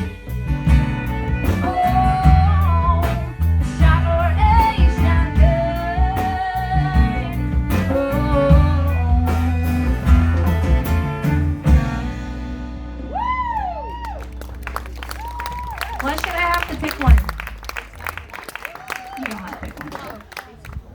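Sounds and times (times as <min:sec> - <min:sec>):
live blues-rock band: 0:00.0 - 0:18.2
person singing: 0:01.4 - 0:11.2.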